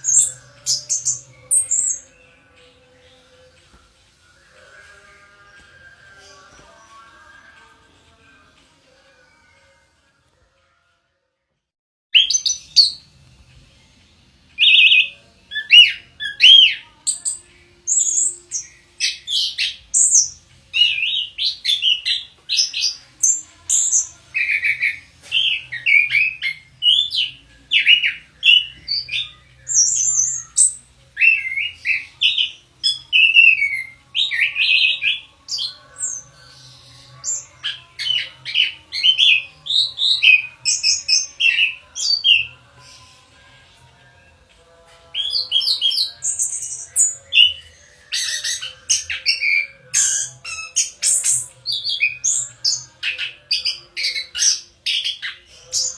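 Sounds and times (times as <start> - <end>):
thrush singing: 0.0 - 11.2, 12.2 - 55.9.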